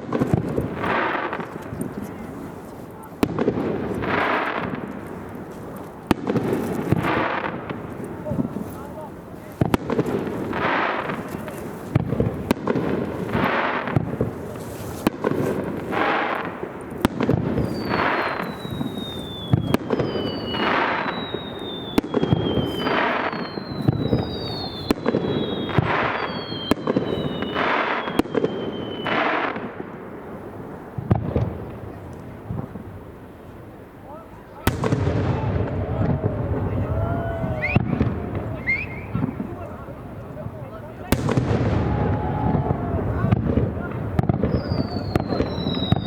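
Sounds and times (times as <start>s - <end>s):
fireworks bursting with sharp cracks: 0.0s - 46.0s
whistling fireworks sliding down: 9.6s - 29.7s, 34.5s - 39.6s, 41.0s - 46.0s.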